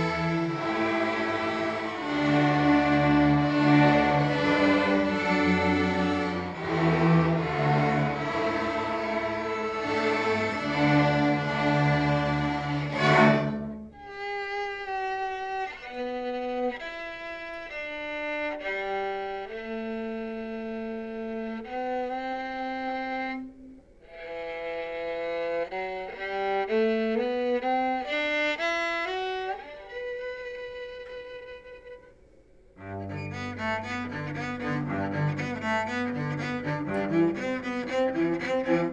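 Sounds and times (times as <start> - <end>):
string ensemble chord: 0.0 - 14.0, 32.8 - 38.9
low strings: 0.0 - 14.5, 32.8 - 38.9
solo violin melody: 0.0 - 32.2, 32.8 - 38.9.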